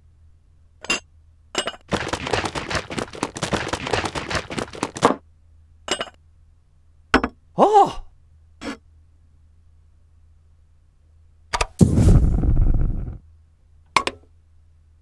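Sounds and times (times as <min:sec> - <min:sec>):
plastic bricks rattling in bowls: 0:01.9 - 0:05.2.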